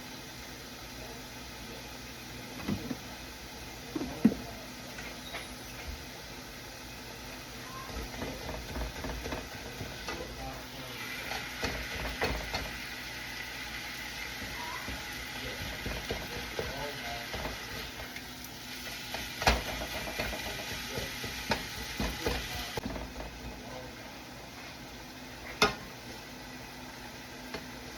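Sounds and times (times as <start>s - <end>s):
meat sizzling in a pan: 5.2s - 23.5s.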